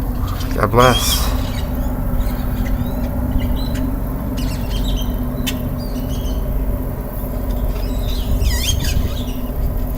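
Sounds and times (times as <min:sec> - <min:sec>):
low rumble: 0:00.0 - 0:07.6
birds chirping and squawking: 0:00.0 - 0:09.6.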